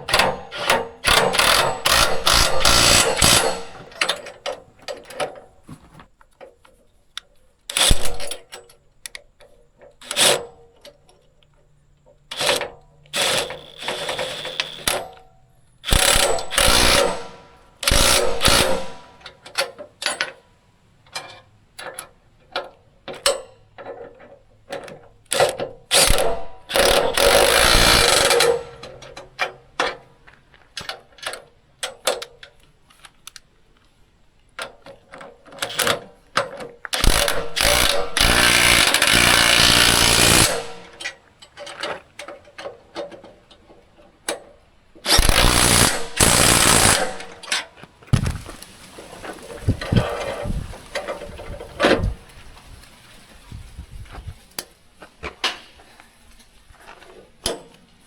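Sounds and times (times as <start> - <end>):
tools and metal parts clanking: 0.0 - 11.4, 12.3 - 27.4.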